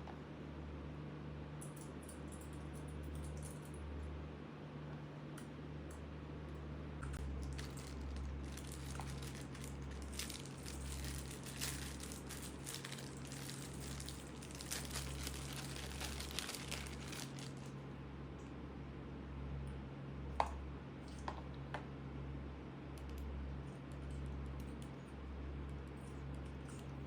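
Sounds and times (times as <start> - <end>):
packaging crinkling: 7.2 - 17.8.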